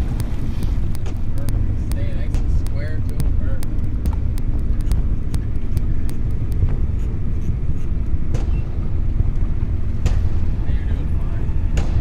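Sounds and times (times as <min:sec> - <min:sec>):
sharp clicks: 0:00.0 - 0:08.7
boat motor running: 0:00.0 - 0:12.0.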